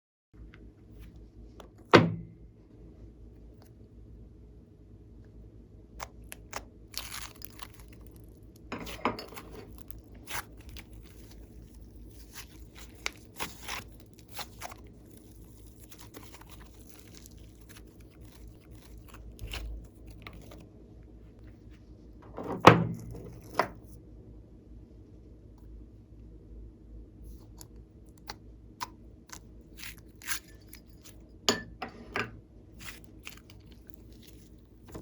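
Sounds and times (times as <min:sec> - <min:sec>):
sticky slime clicks and crackles: 0:06.0 - 0:08.4, 0:09.8 - 0:20.6.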